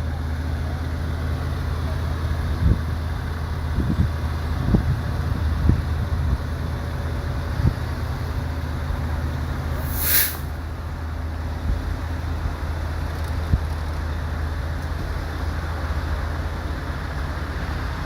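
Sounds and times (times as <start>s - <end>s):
burst of hiss: 9.8s - 10.6s.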